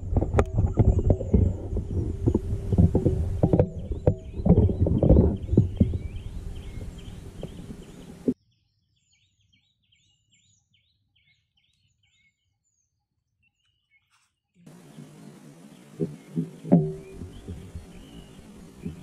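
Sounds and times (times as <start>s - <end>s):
low rumble: 0.0s - 8.4s
thumps: 0.0s - 8.4s, 14.7s - 19.0s
small birds chirping: 0.5s - 19.0s.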